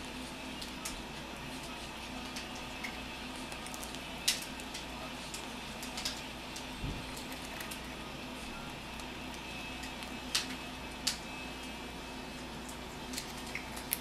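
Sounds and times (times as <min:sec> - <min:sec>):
steady low hum: 0:00.0 - 0:14.0
beak cracking walnut shell: 0:13.1 - 0:14.0.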